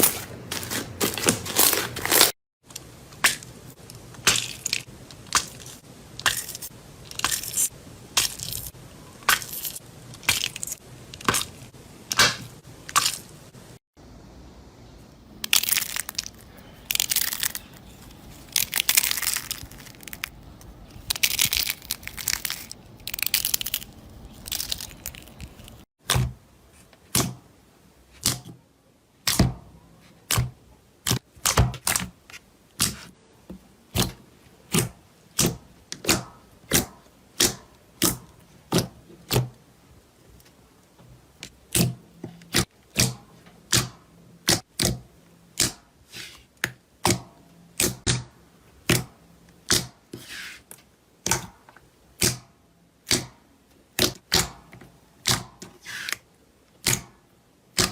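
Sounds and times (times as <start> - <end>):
slime crackling and popping: 18.4 - 25.8.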